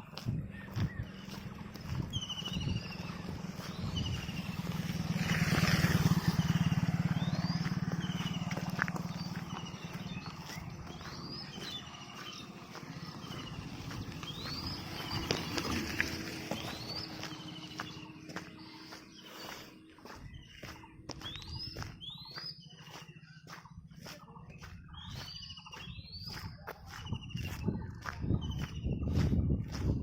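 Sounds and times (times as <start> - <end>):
motor vehicle engine passing: 0.4 - 22.1.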